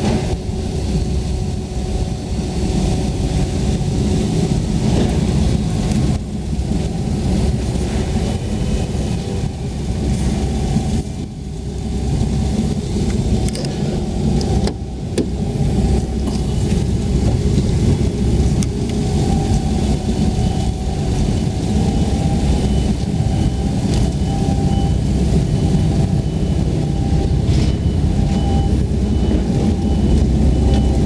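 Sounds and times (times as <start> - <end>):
faint whine: 0.0 - 31.0
car engine running: 13.3 - 23.0.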